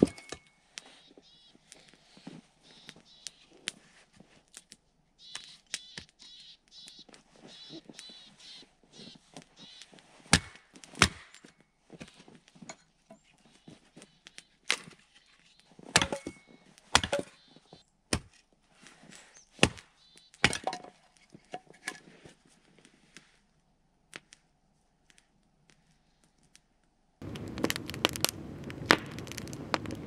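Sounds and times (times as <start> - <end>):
axe chopping firewood: 0.0 - 0.4, 10.3 - 11.5, 15.8 - 17.3, 18.1 - 18.4, 19.6 - 22.0, 27.3 - 30.0
soft taps and crackles: 0.8 - 4.8, 6.8 - 16.9, 21.2 - 23.5, 24.1 - 30.0.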